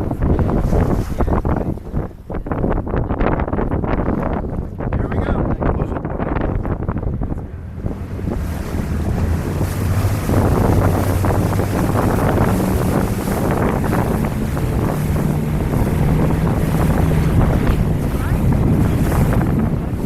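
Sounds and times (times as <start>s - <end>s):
boat engine drone: 0.0s - 20.0s
rushing water: 0.0s - 20.0s
wind buffeting microphone: 0.0s - 20.0s.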